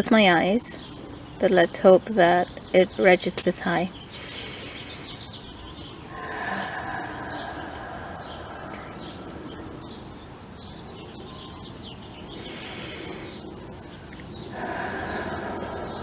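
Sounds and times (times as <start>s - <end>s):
birds chirping: 0.0s - 16.0s
slow breath out: 4.1s - 5.4s, 6.1s - 9.7s, 12.4s - 13.5s, 14.5s - 16.0s.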